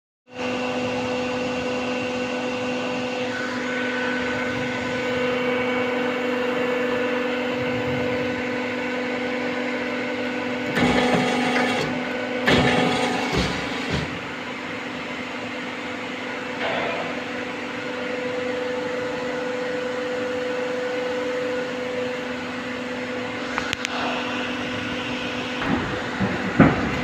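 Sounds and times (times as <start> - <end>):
machine motor hum and whine: 0.3 - 27.0
machine clattering and clanking: 10.7 - 14.4, 25.6 - 27.0.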